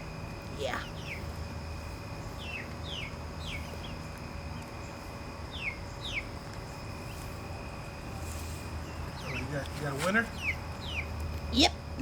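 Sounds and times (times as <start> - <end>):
steady low hum: 0.0 - 12.0
chicks peeping: 0.8 - 1.4, 2.2 - 7.4, 8.0 - 11.4.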